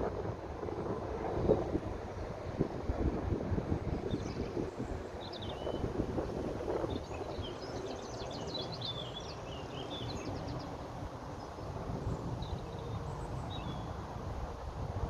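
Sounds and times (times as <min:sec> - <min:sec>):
wind noise on microphone: 0:00.0 - 0:07.7.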